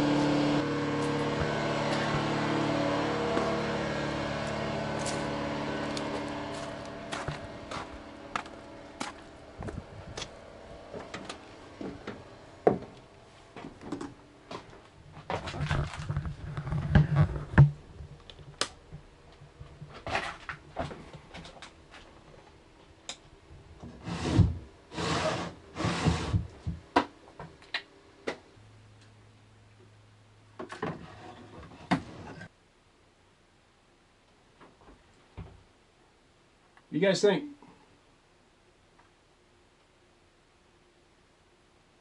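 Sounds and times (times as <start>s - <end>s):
rubbing or scraping: 15.3s - 17.7s, 23.9s - 26.5s.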